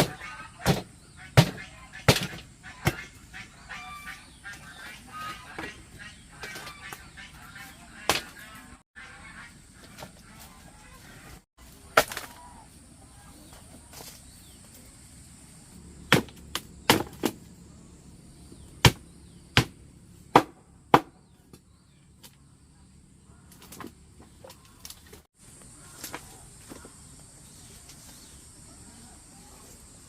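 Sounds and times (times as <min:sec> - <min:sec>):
tool striking wood: 0:19.6 - 0:21.2.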